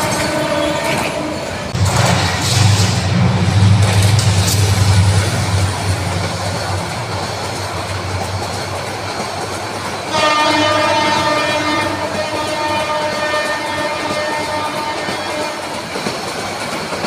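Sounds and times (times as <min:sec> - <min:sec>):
train horn: 0:00.0 - 0:02.8, 0:10.0 - 0:15.9
train wheels on track: 0:00.0 - 0:17.0.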